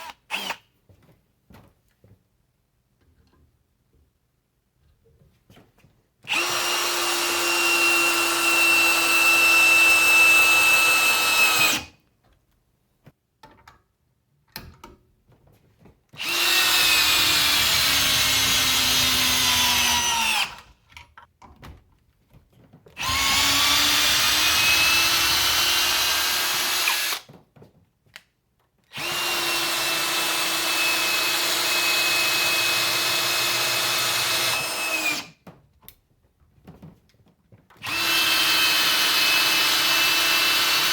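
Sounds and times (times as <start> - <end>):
cordless hammer drill whining: 0.0 - 0.6, 6.2 - 11.9, 16.2 - 20.7, 23.0 - 27.2, 28.9 - 35.3, 37.8 - 40.9.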